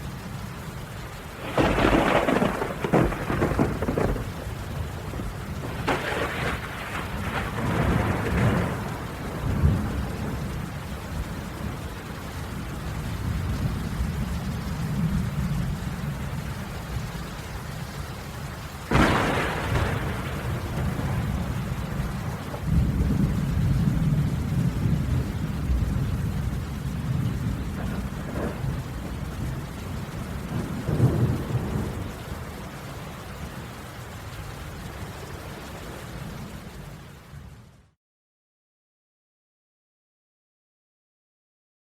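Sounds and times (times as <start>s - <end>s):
steady rain falling: 0.0s - 38.0s
thunder cracks and rumbling: 1.4s - 11.8s, 18.9s - 32.8s.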